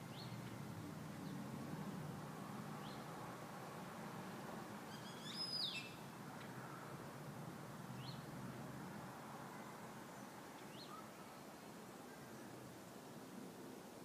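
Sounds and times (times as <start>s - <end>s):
faint background noise: 0.0s - 14.0s
bird calling: 4.9s - 6.0s, 10.7s - 11.5s
short high bird chirps: 4.9s - 6.0s.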